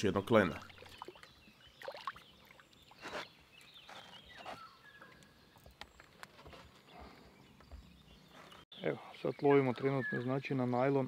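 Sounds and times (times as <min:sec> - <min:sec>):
faint outdoor ambience: 0:00.0 - 0:11.0
bird-like chirps and whistles: 0:09.2 - 0:10.6.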